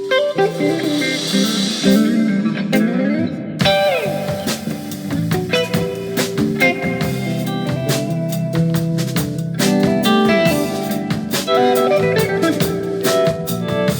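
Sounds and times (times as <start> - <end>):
electric guitar sliding notes: 0.0 - 8.6, 10.0 - 13.9
bass line: 3.6 - 13.9
drum hits: 3.6 - 13.9.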